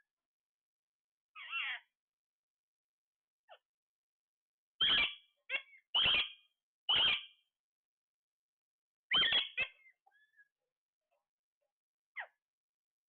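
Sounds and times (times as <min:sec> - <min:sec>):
parrot squawking: 0:01.4 - 0:01.8, 0:04.8 - 0:07.4, 0:09.1 - 0:09.9.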